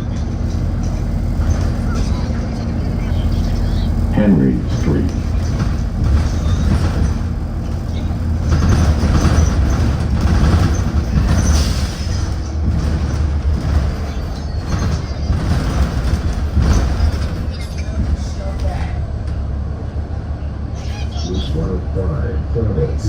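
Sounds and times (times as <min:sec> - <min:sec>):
bus engine drone: 0:00.0 - 0:23.0
road noise: 0:00.0 - 0:23.0.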